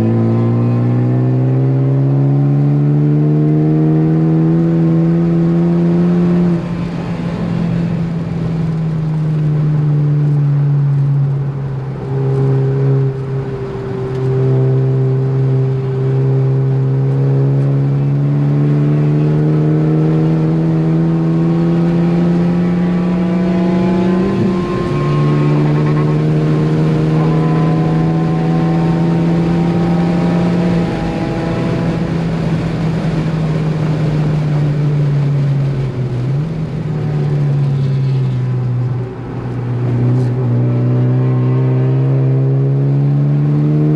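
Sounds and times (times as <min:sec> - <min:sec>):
car engine revving hard: 0:00.0 - 0:08.8, 0:14.1 - 0:35.9, 0:39.7 - 0:43.9.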